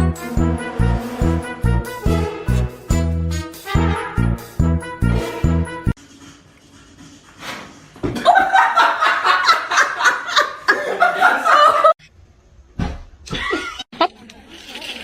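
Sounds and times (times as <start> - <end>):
person laughing hard: 8.2 - 12.0.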